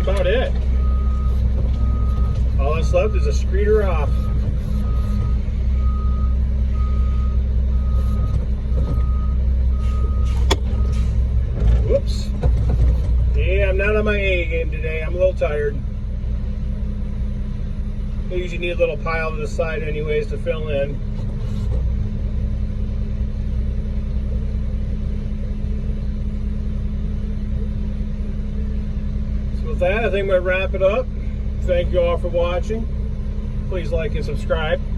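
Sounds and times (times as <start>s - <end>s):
diesel engine rumble: 0.0s - 34.9s
reversing alarm beeping: 0.8s - 11.2s.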